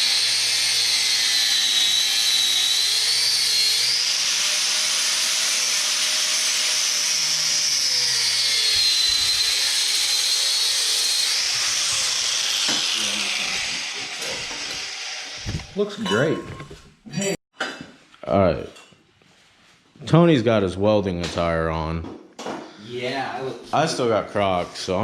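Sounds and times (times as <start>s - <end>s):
power tool whining on metal: 0.0s - 15.8s.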